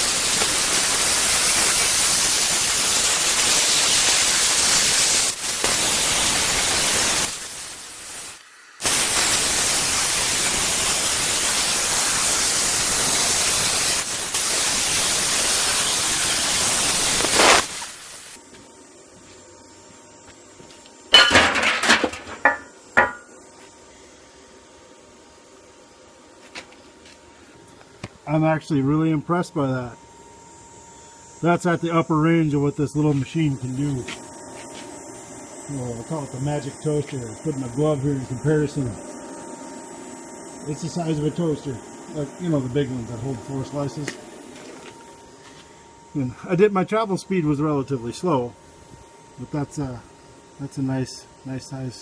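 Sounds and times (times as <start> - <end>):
plasma cutter hissing: 0.0 - 18.4, 22.3 - 23.3, 31.0 - 52.0.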